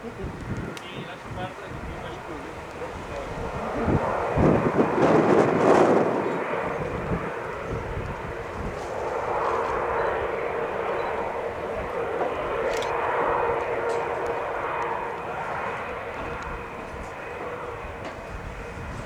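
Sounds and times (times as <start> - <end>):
jet engines rushing: 0.0 - 19.0.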